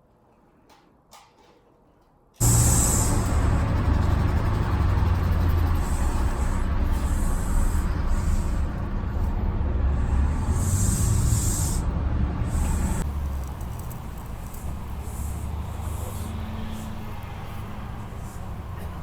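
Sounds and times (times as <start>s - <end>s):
hiss: 2.4s - 19.0s.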